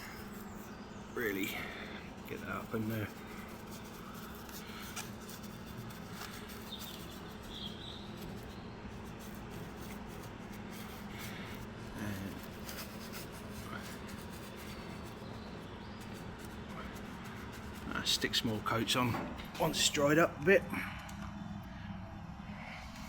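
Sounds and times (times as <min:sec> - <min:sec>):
paintbrush scratchy strokes: 0:00.0 - 0:18.6
steady low hum: 0:00.0 - 0:23.0.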